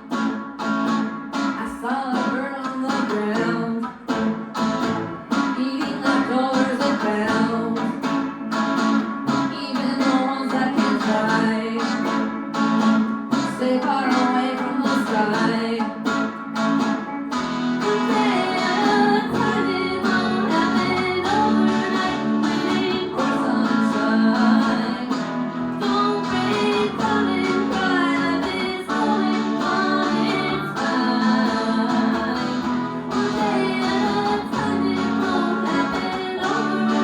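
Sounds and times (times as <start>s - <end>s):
acoustic guitar strumming: 0.0s - 37.0s
person singing: 1.5s - 4.1s, 5.4s - 8.2s, 9.3s - 12.3s, 13.3s - 16.2s, 17.8s - 37.0s.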